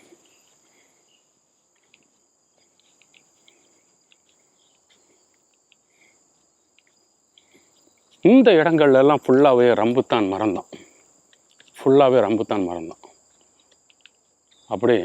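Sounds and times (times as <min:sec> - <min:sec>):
high-pitched insect drone: 0:00.0 - 0:15.0
soft ticks: 0:01.7 - 0:05.9, 0:06.7 - 0:08.3, 0:11.2 - 0:11.8, 0:13.3 - 0:14.6.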